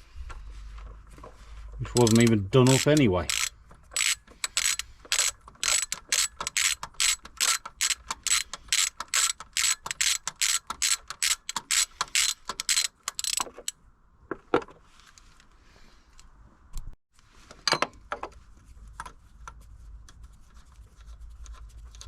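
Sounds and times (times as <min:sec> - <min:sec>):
ratchet wrench clicking: 0:01.9 - 0:13.7.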